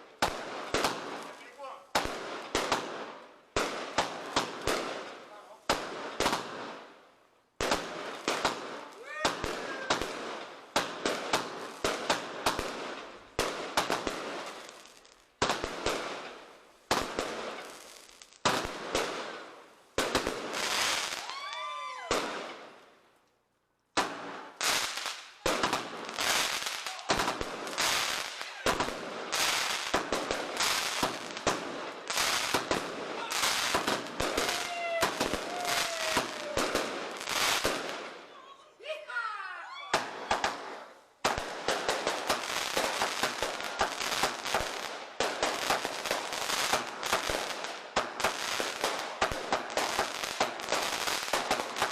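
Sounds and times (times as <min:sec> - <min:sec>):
fireworks bangs: 0:00.0 - 0:06.9, 0:07.6 - 0:22.8, 0:23.9 - 0:39.1, 0:39.8 - 0:51.9
fireworks crackle: 0:00.0 - 0:07.0, 0:07.6 - 0:38.7, 0:40.0 - 0:51.9
fireworks whistles: 0:32.1 - 0:37.8.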